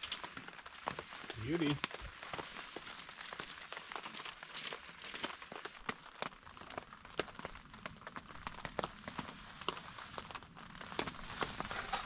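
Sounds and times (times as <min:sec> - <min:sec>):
rain tapping on tent fabric: 0:00.0 - 0:12.0.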